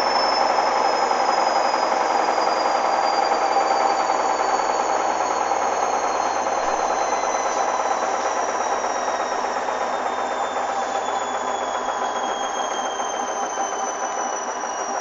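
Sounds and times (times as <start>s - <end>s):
high motor whine: 0.0s - 15.0s
washing machine spinning: 0.0s - 15.0s.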